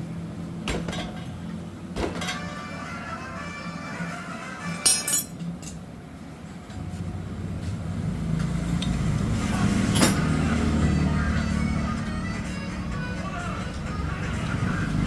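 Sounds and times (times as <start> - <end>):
metallic clink: 4.8 - 5.4.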